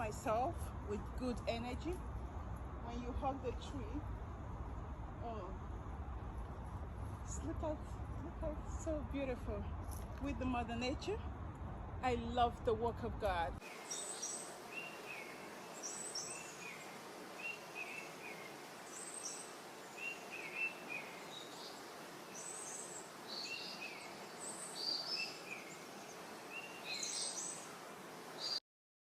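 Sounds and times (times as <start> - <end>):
steady outdoor hiss: 0.0 - 28.6
birds chirping: 13.6 - 28.6.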